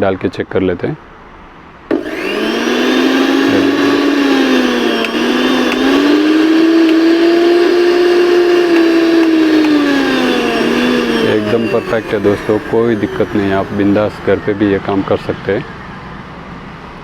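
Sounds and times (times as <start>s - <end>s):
mixer grinder motor running: 1.9s - 15.3s.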